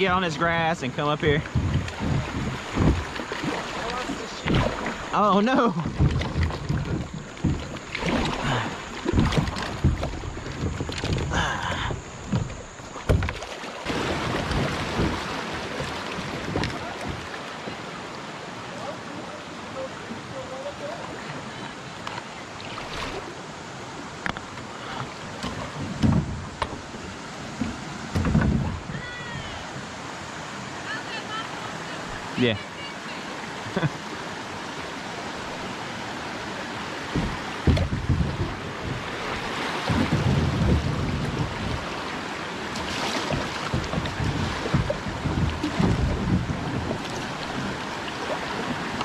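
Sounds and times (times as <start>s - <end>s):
wind buffeting microphone: 0.0s - 5.2s, 5.8s - 17.3s, 25.6s - 29.7s, 37.0s - 42.1s, 42.8s - 49.0s
paddle knocking on hull: 0.0s - 17.6s, 24.2s - 30.0s, 35.4s - 49.0s
river water flowing: 0.0s - 49.0s
heavy thumps: 1.4s - 4.7s, 5.8s - 8.4s, 9.0s - 13.4s, 25.4s - 26.9s, 27.6s - 29.1s, 37.1s - 39.0s, 43.3s - 47.7s.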